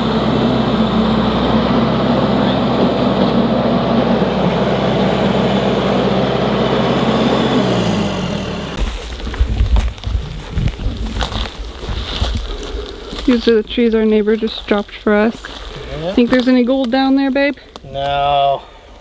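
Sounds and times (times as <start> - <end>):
machine engine running: 0.0 - 10.8
low uneven rumbling: 0.0 - 19.0.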